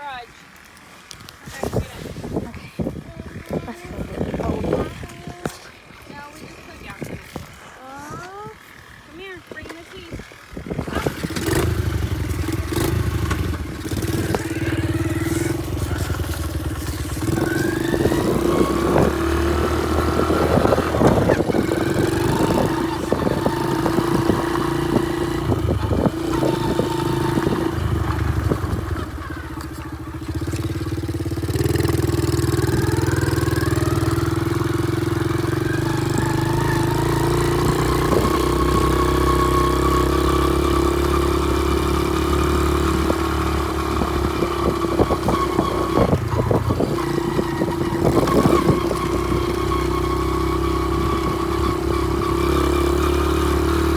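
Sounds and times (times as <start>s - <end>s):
small motorbike engine revving: 1.1s - 53.9s.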